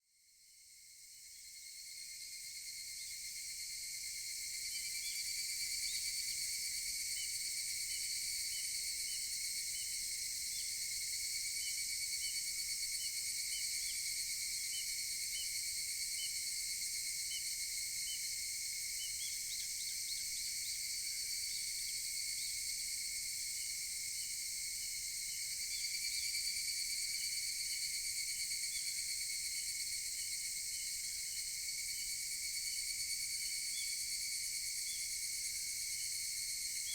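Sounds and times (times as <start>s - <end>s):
cicadas calling: 17.2s - 22.5s.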